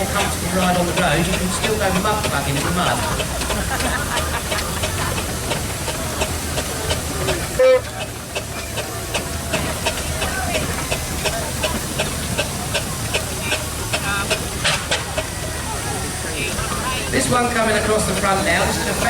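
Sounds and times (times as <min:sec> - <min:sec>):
steam engine exhaust beats: 0:00.0 - 0:19.0
steam hissing: 0:00.0 - 0:19.0
steam whistle toot: 0:07.5 - 0:08.0.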